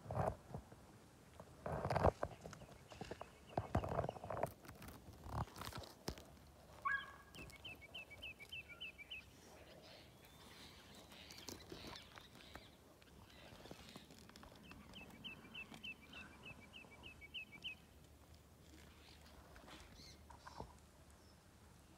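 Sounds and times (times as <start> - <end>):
bird high chirps: 6.8 - 9.3, 9.9 - 17.9.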